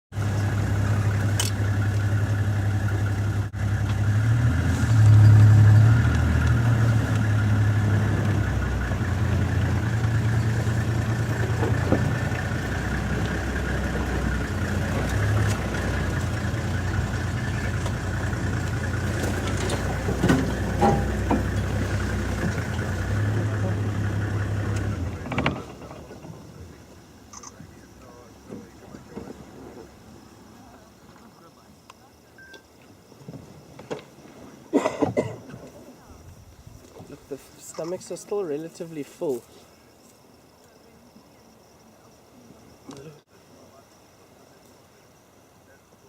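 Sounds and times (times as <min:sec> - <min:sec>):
vehicle engine idling: 0:00.1 - 0:34.6.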